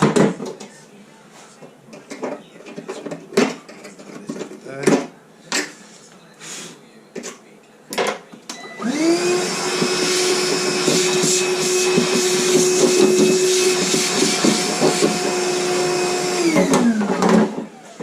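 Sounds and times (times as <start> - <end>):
electric power tool spinning: 8.8 - 18.0.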